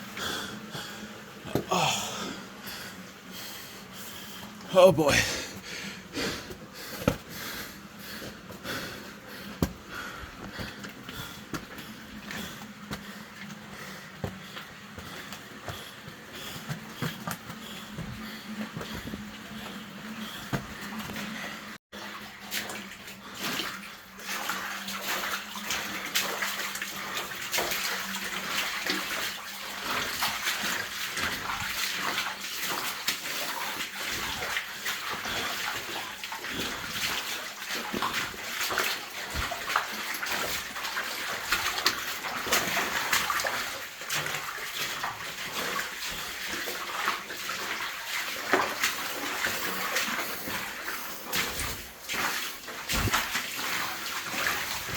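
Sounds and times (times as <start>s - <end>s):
water splashing from wading: 22.0s - 54.9s.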